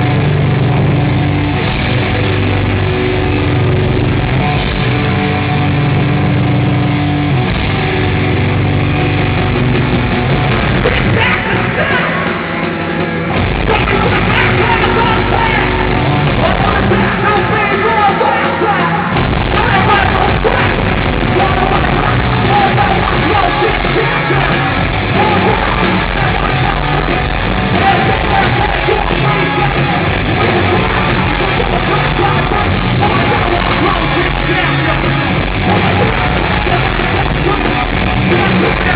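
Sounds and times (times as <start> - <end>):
distorted guitars: 0.0 - 38.9
yelled vocals: 0.0 - 38.9.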